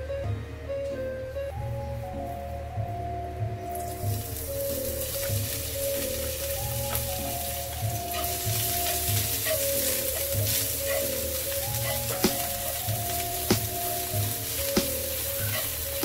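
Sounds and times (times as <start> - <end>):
leek sizzling in hot oil: 4.0 - 16.0.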